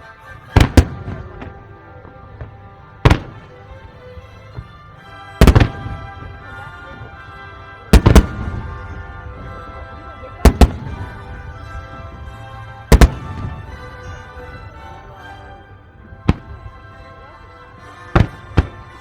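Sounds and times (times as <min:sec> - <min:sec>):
background music: 0:00.0 - 0:19.0
firework shells bursting: 0:00.6 - 0:06.4, 0:07.9 - 0:08.9, 0:10.4 - 0:11.2, 0:12.9 - 0:14.0, 0:16.2 - 0:16.8, 0:18.1 - 0:19.0.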